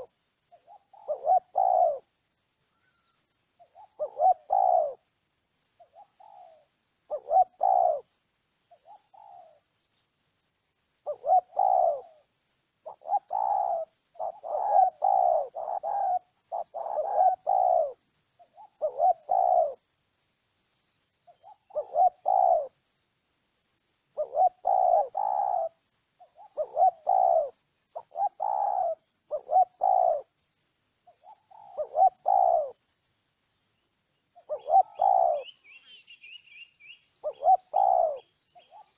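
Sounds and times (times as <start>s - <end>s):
dove cooing: 0.0s - 2.1s, 2.8s - 5.1s, 5.8s - 9.7s, 11.0s - 19.9s, 21.3s - 22.9s, 24.1s - 30.3s, 31.1s - 32.9s, 34.3s - 35.9s, 37.2s - 38.9s
faint high chirp: 10.7s - 38.9s.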